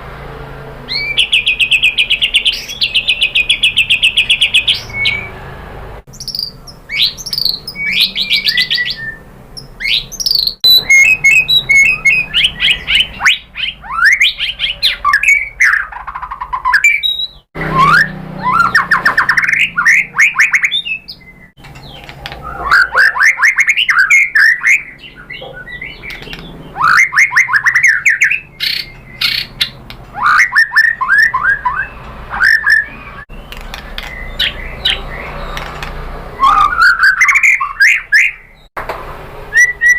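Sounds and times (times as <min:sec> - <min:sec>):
bird singing trills and whistles: 0:00.9 - 0:05.4, 0:06.1 - 0:38.7, 0:39.5 - 0:39.9.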